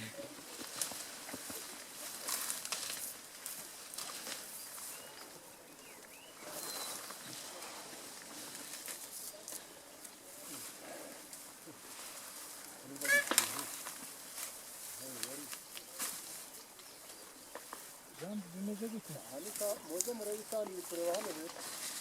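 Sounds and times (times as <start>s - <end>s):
vegetation rustling and crackling: 0.0s - 22.0s
faint bird chirps: 4.6s - 7.4s.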